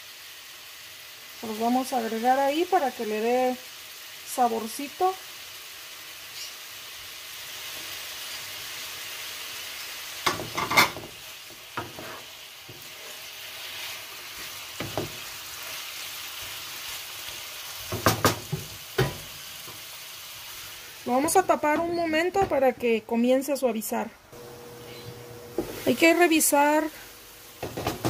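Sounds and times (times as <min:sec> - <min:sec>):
meat and garlic sizzling in oil: 0:00.0 - 0:28.0
wooden spoon knocking on pan: 0:14.8 - 0:15.2, 0:17.9 - 0:19.3, 0:27.6 - 0:28.0.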